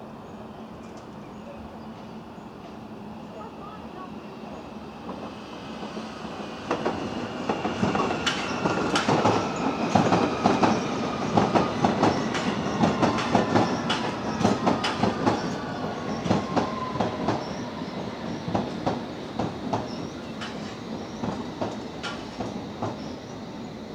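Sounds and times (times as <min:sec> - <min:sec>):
train wheels clattering: 0:06.7 - 0:23.1.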